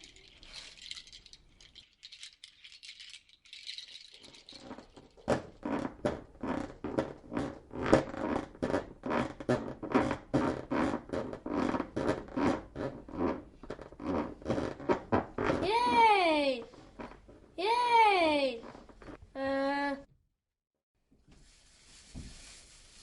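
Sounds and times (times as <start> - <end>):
faint shaker hiss: 0.0 - 3.2, 21.4 - 23.0
fast regular rattling: 0.0 - 5.3.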